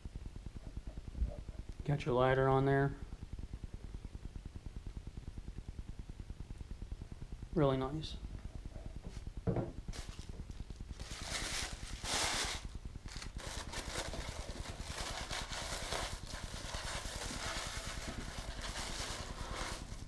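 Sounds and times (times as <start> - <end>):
packaging rustling: 9.9 - 20.0.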